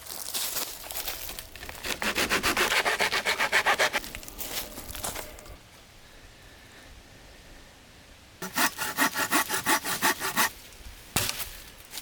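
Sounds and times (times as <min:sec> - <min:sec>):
hand saw cutting wood: 0:01.8 - 0:04.1, 0:08.4 - 0:10.6.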